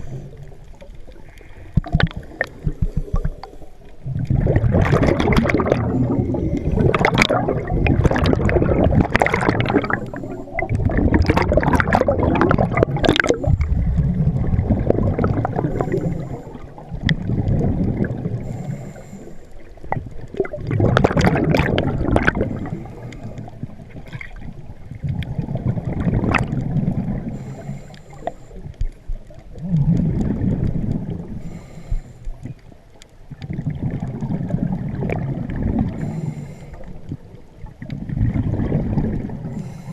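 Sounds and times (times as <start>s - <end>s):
air bubbling underwater: 1.7s - 3.4s, 4.1s - 18.5s, 19.9s - 27.3s, 33.4s - 36.1s, 37.8s - 39.6s.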